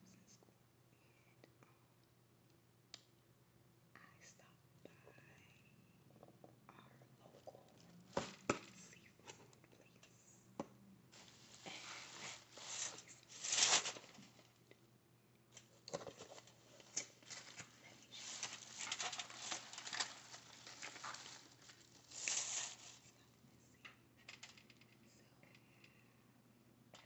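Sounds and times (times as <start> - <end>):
eating and food crackling: 15.6 - 23.2.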